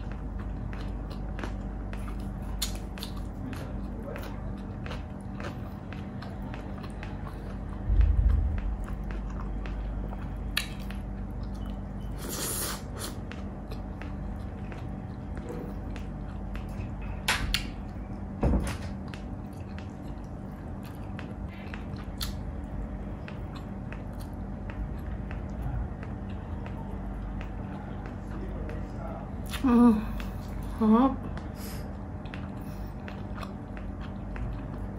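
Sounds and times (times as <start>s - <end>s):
close chewing: 0.0s - 18.3s, 18.9s - 34.9s
faint steady hum: 0.0s - 34.9s
wet mouth clicks and smacks: 20.9s - 22.4s.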